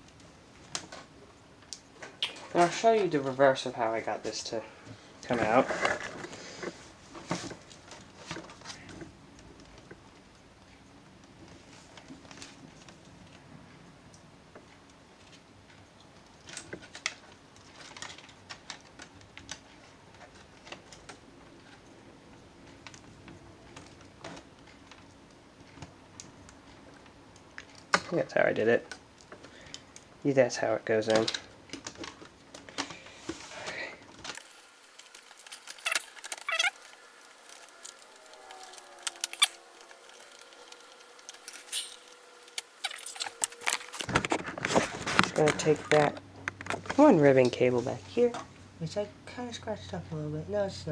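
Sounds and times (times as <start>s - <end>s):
plastic case parts clicking: 34.4s - 44.1s.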